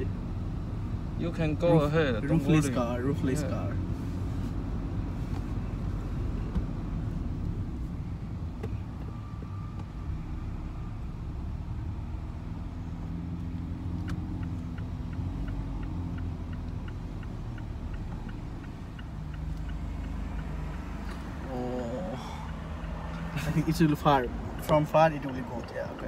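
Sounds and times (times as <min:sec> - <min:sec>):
sports car engine and road rumble: 0:00.0 - 0:26.0
light regular ticking: 0:12.2 - 0:26.0.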